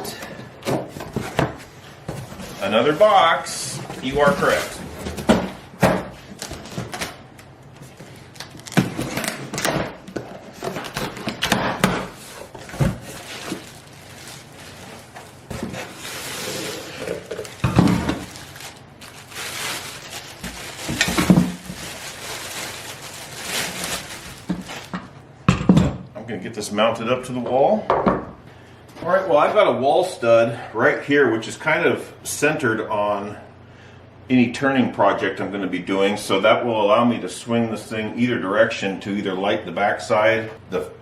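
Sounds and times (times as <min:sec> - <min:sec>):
cardboard packaging rustling and tearing: 0:03.9 - 0:05.3, 0:06.2 - 0:25.2.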